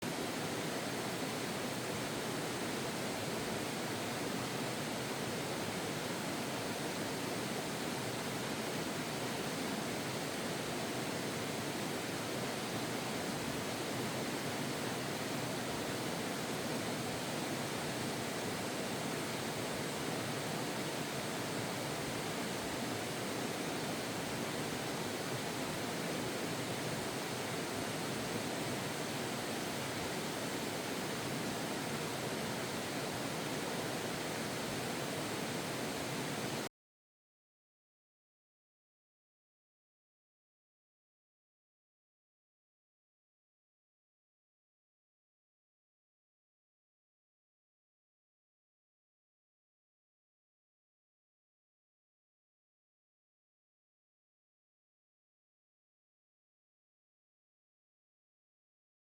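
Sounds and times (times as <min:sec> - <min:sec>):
running water rushing: 0:00.0 - 0:36.7.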